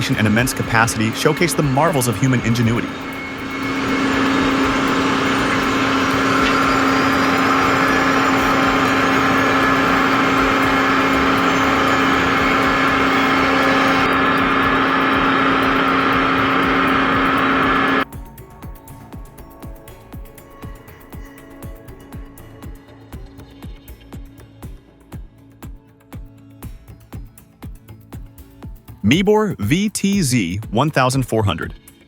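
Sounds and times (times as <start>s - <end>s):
crane engine droning: 0.0s - 18.1s.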